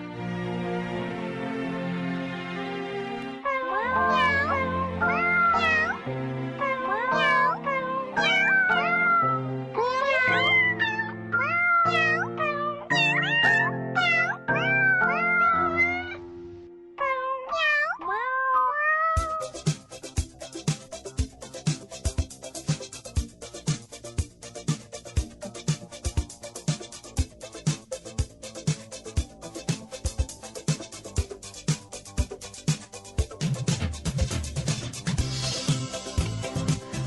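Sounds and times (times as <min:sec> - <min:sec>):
tune sung in cat meows: 0:03.4 - 0:16.3, 0:16.9 - 0:19.7
held chords: 0:19.2 - 0:37.0.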